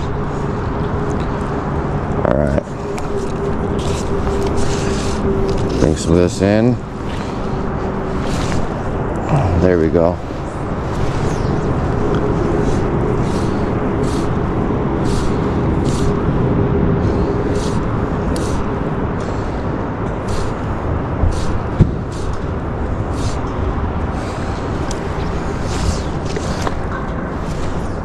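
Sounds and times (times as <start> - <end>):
loud outdoor rushing noise: 0.0 - 28.0
short soft swishes: 2.9 - 9.2.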